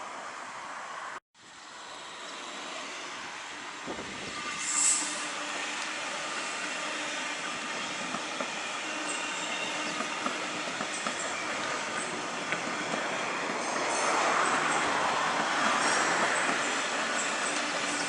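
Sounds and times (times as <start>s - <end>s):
train rolling on track: 1.7s - 18.0s.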